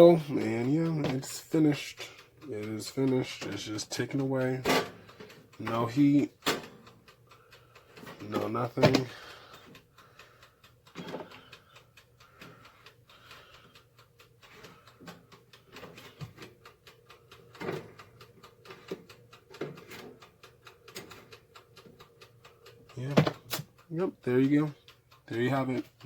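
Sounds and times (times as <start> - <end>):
timer dial ticking: 0.0 - 26.0.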